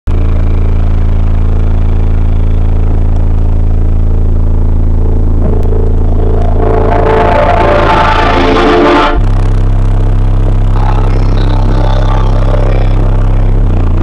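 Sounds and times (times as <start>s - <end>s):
deep bass note from subwoofers: 0.1s - 14.0s
music playing: 4.6s - 9.4s.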